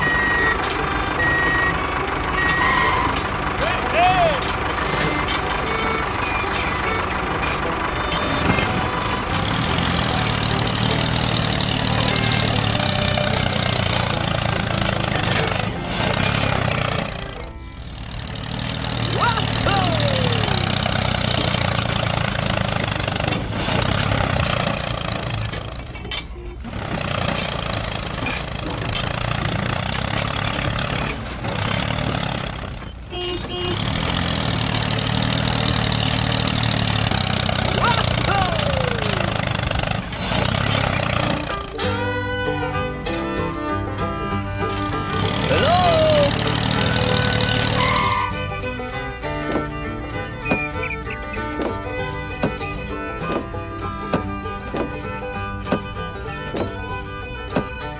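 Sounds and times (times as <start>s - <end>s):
vehicle engine idling: 0.0s - 57.9s
short electronic beeps: 2.4s - 3.2s.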